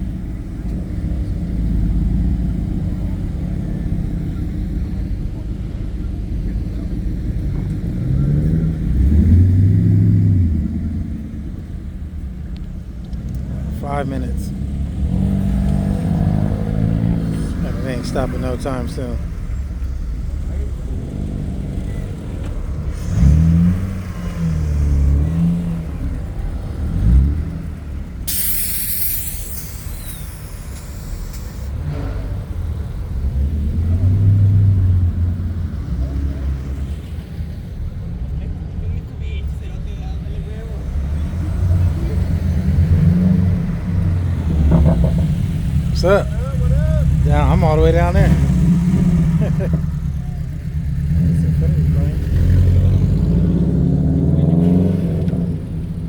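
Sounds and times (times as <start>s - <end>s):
car engine exhaust rumble: 0.0s - 56.0s
loud hiss: 28.2s - 31.8s.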